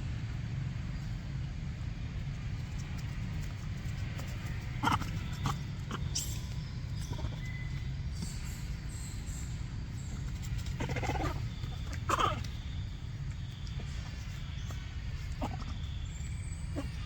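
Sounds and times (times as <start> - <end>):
monkey calling: 4.8 - 7.9, 10.6 - 17.0.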